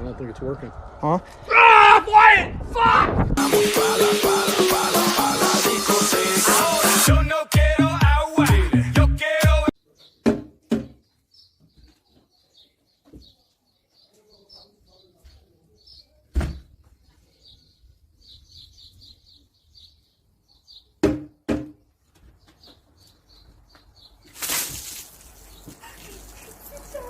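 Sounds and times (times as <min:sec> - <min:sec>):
bird chirping: 0:09.8 - 0:21.0, 0:21.8 - 0:24.4.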